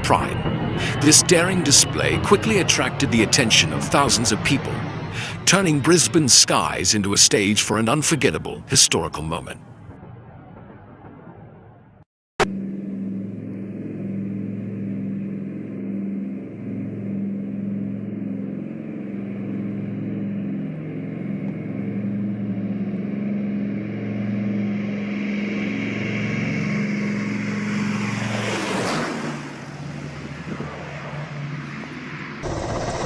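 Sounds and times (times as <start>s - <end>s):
jet plane flying overhead: 0.0s - 33.0s
steady rushing noise: 32.4s - 33.0s.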